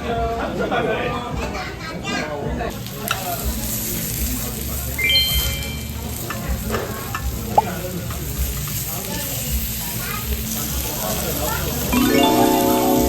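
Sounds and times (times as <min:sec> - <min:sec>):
food sizzling: 0:02.7 - 0:13.0.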